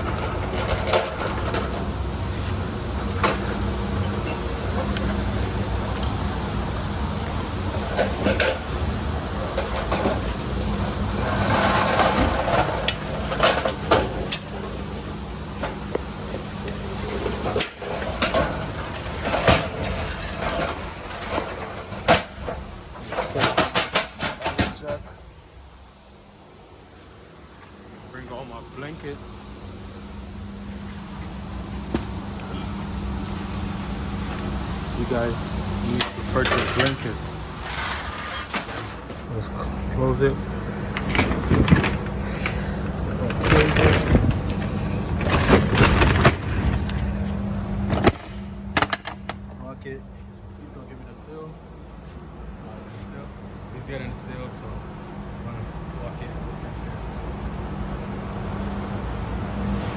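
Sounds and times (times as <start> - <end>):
sharp knocks and clanks: 0.0 - 14.8, 17.1 - 25.2, 30.6 - 39.3
metal roll-up door rattling: 0.0 - 15.9, 16.9 - 25.1, 30.6 - 39.4, 40.9 - 47.2
steady low hum: 0.0 - 59.9.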